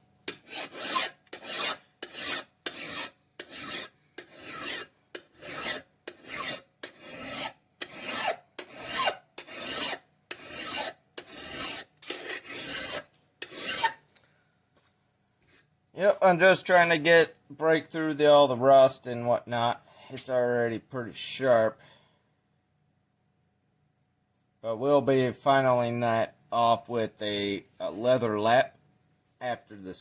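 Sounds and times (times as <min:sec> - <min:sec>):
file rasping on metal: 0:00.3 - 0:14.0.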